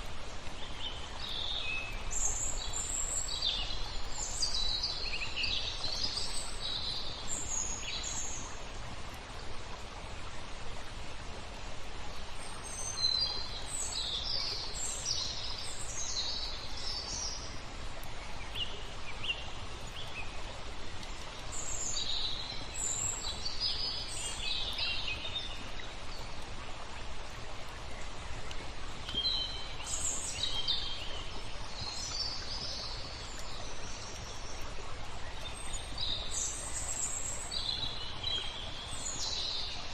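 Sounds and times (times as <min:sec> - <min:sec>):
flowing water hiss: 0:00.0 - 0:39.9
songbirds chirping: 0:00.0 - 0:39.9.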